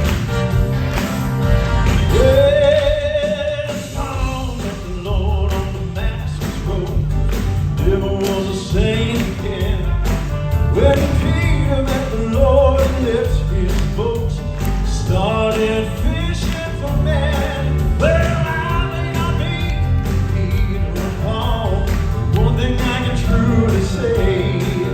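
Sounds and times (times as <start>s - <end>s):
bass: 0.0s - 24.9s
drums: 0.0s - 24.9s
male vocal quartet singing: 10.7s - 24.9s.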